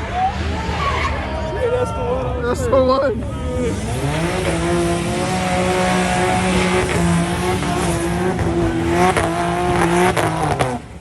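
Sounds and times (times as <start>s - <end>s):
car engine at high revs: 2.3s - 11.0s.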